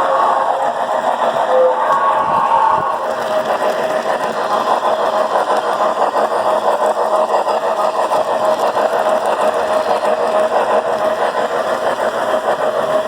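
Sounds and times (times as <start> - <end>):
wheels clicking over track: 0.0 - 13.0.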